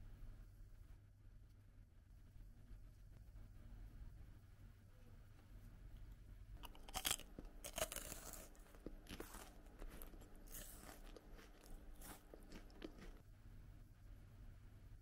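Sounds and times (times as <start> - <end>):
crisp crunches of chewing pastry: 6.6 - 13.2.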